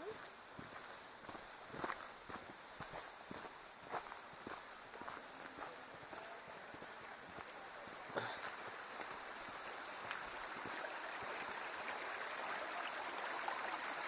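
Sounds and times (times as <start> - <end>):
stream water rushing: 3.0 - 14.0.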